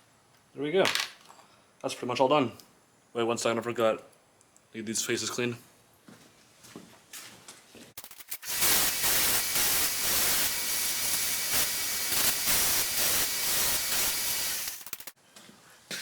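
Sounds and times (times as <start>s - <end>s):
pressurized spray hissing: 8.3s - 15.2s.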